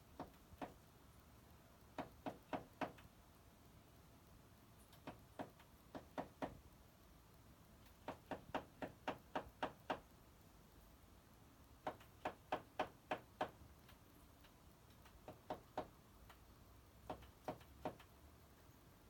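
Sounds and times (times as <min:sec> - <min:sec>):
bird pecking on glass: 0:07.8 - 0:10.0, 0:11.8 - 0:16.4, 0:17.0 - 0:18.1.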